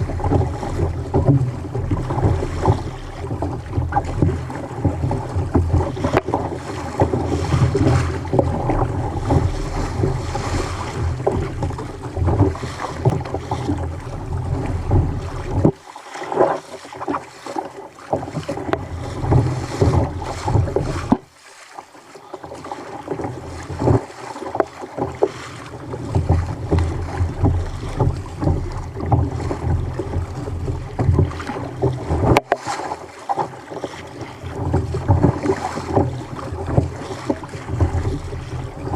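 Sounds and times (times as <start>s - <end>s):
wind buffeting microphone: 0.0s - 15.7s
water slapping against kayak: 0.0s - 38.9s.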